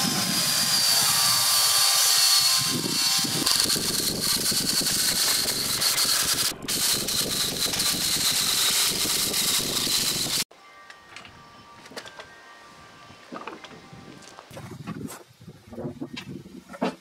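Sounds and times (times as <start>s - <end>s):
power tool motor whining: 0.0s - 10.4s
rough wood cutting noise: 0.0s - 10.5s.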